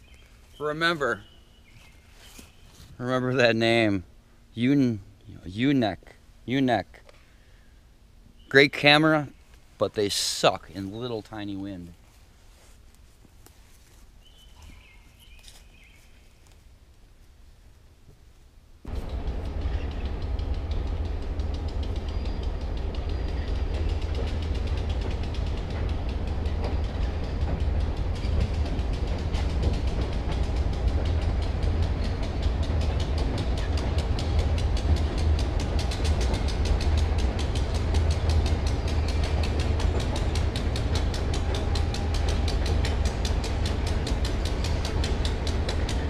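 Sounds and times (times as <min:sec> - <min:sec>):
train wheels clicking over rail joints: 0:18.9 - 0:46.0.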